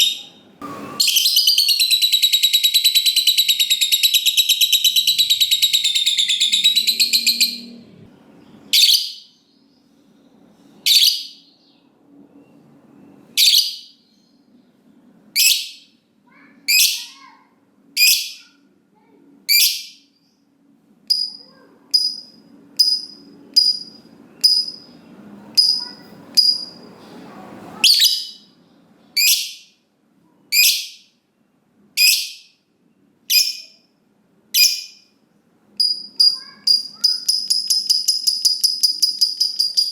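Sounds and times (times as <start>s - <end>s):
short shrill bird calls: 0.9s - 7.7s
lovebird chattering trill: 1.0s - 7.8s, 25.6s - 26.8s, 33.3s - 33.8s, 34.6s - 35.0s, 35.8s - 39.9s.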